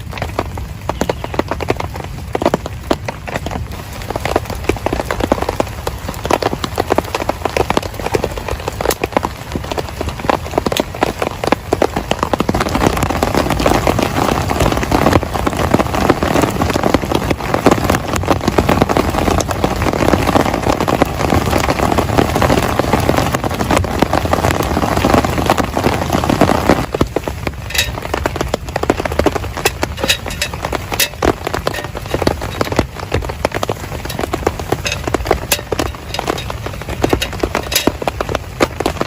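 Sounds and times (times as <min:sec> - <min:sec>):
heavy rain patter: 0:00.0 - 0:39.0.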